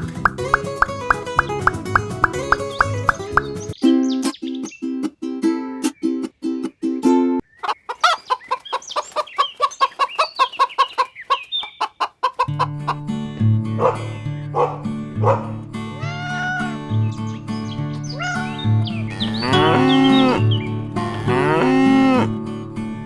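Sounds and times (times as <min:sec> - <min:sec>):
background music with bass line: 0:00.0 - 0:03.8
chickens clucking: 0:00.0 - 0:04.4, 0:07.4 - 0:13.0, 0:16.2 - 0:21.8
chicken squawks: 0:07.5 - 0:12.7, 0:14.6 - 0:16.8, 0:18.0 - 0:20.4.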